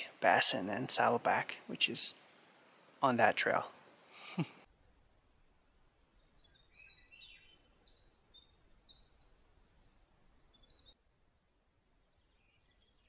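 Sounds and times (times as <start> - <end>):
background hiss: 0.0 - 4.7
bird chirping: 0.0 - 11.2, 11.8 - 13.0.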